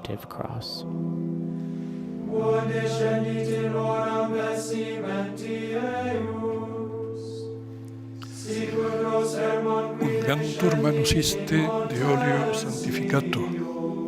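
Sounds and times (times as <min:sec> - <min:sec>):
choir singing chant: 0:02.2 - 0:07.6, 0:08.2 - 0:14.0.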